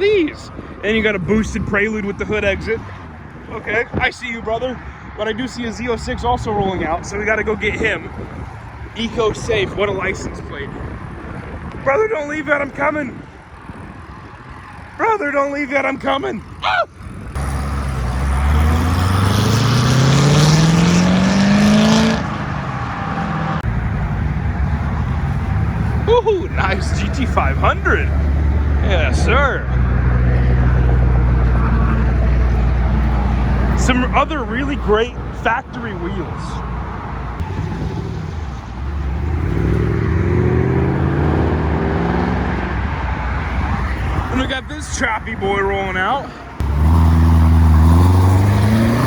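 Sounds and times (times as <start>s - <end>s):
car engine accelerating: 17.1s - 49.0s.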